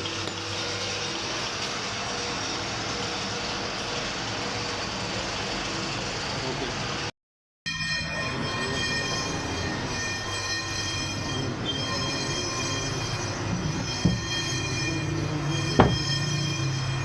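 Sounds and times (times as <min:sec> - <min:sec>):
lathe cutting tool squealing on metal: 0:07.7 - 0:17.0
lathe motor humming: 0:08.0 - 0:17.0.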